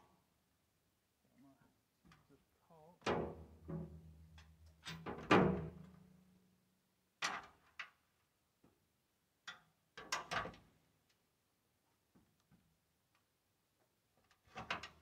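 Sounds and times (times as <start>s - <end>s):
knocks on a metal ladder: 3.1s - 4.0s.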